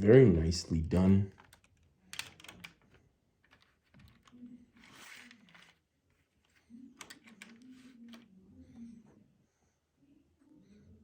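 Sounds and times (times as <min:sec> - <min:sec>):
plastic model clicks: 0:01.3 - 0:05.8, 0:07.0 - 0:08.3.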